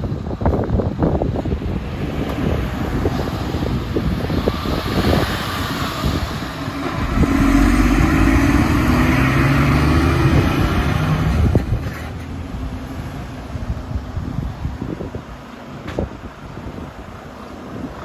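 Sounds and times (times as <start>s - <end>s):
diesel truck engine passing: 2.7s - 14.2s.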